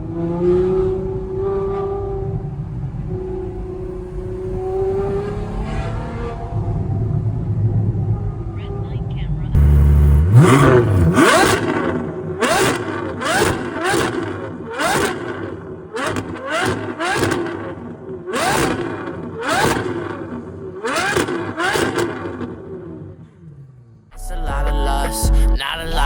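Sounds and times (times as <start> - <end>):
car exhaust revving in bursts: 9.6 - 23.0.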